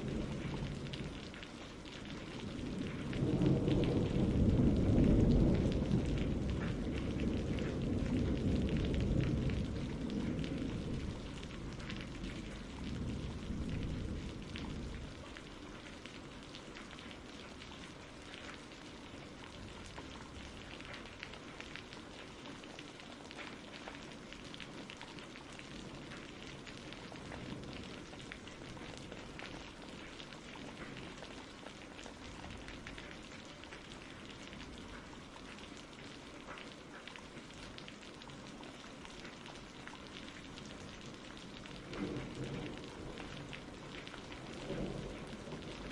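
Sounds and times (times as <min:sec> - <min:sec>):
thunder rumble: 0:00.0 - 0:16.3, 0:40.8 - 0:45.9
rain pattering: 0:00.0 - 0:45.9.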